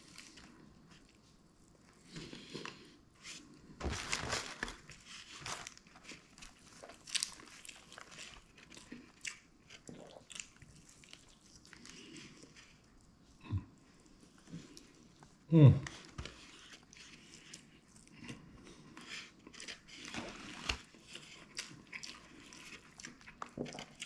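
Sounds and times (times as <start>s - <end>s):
crunching fried chicken: 4.3s - 13.1s
wet chewing: 6.0s - 13.2s, 16.8s - 24.0s.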